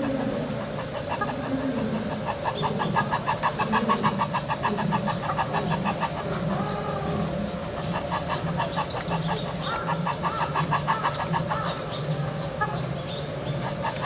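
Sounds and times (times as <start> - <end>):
birds chattering: 0.0 - 14.0
steady low hum: 0.0 - 14.0
rising and falling bird calls: 5.1 - 14.0.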